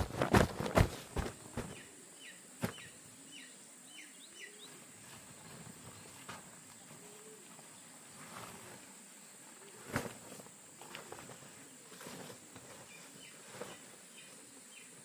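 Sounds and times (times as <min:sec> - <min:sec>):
faint bird chirps: 0:01.6 - 0:08.5.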